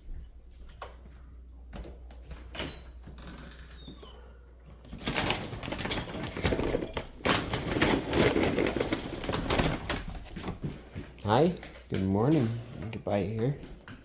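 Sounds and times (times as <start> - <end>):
dry dog food rattling: 5.0 - 10.4.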